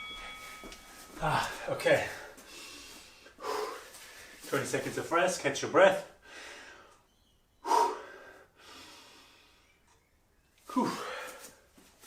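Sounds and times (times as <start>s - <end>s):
man breathing hard: 0.1s - 4.5s, 6.1s - 9.8s, 10.7s - 11.8s.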